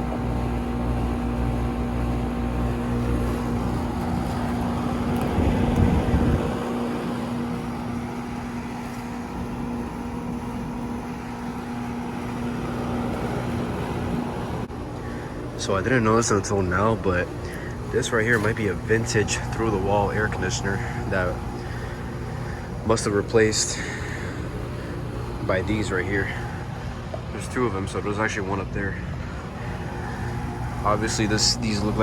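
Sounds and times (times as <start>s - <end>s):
air conditioner unit humming: 0.0s - 32.0s
fan rushing: 0.0s - 32.0s.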